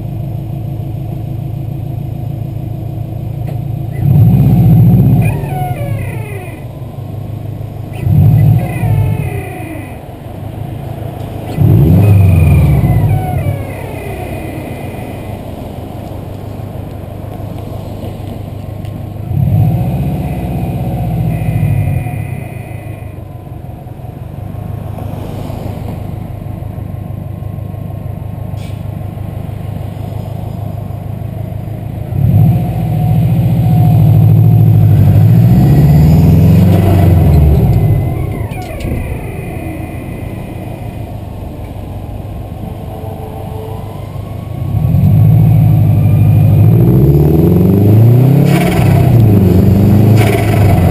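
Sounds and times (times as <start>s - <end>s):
turbocharged engine accelerating: 2.8s - 28.0s, 29.4s - 50.9s
blow-off valve squawk: 5.2s - 6.8s, 7.9s - 10.1s, 11.5s - 15.4s, 21.2s - 23.2s.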